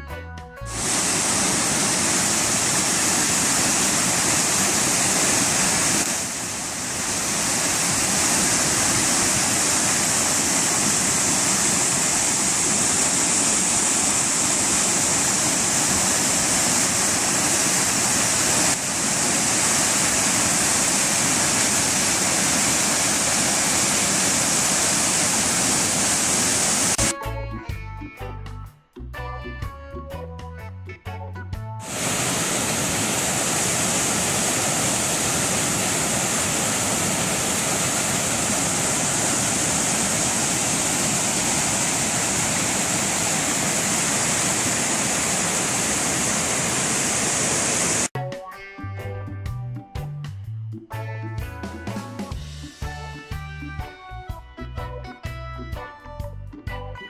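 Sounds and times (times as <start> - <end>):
waterfall roaring: 0.7 - 27.1, 31.8 - 48.1.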